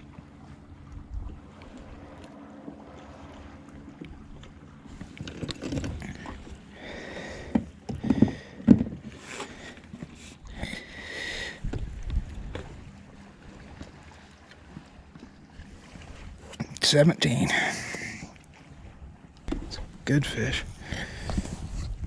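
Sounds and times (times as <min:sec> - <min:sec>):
knocks against kayak hull: 0:07.4 - 0:09.1, 0:19.5 - 0:19.8.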